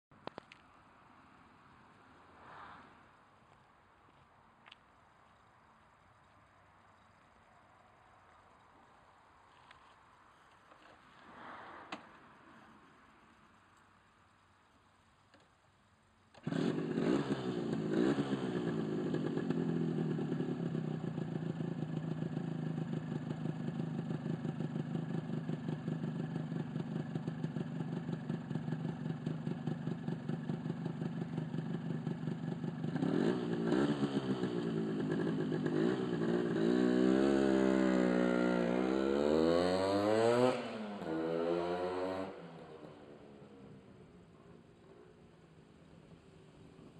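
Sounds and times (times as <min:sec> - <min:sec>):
motorcycle engine idling and revving: 0:16.3 - 0:46.9.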